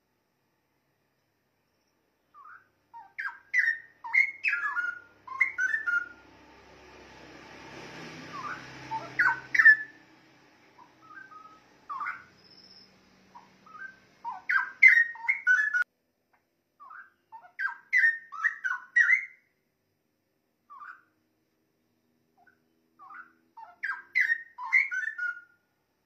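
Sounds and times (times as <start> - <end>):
bulbul singing: 1.8 - 6.3, 8.2 - 10.1, 10.7 - 15.9, 16.8 - 19.5, 22.4 - 25.5.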